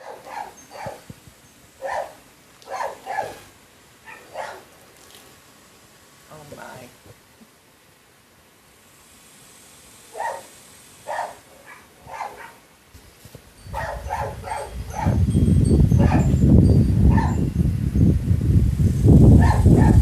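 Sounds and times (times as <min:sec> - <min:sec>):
dog barking: 0:00.0 - 0:01.0, 0:01.8 - 0:04.7, 0:10.1 - 0:12.6, 0:13.7 - 0:15.2, 0:16.0 - 0:16.3, 0:17.1 - 0:17.4, 0:19.4 - 0:20.0.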